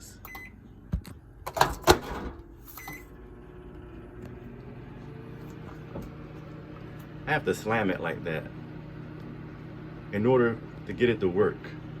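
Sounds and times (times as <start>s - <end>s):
microwave humming: 0.0s - 12.0s
microwave keypad beeping: 0.2s - 0.6s, 2.7s - 3.2s.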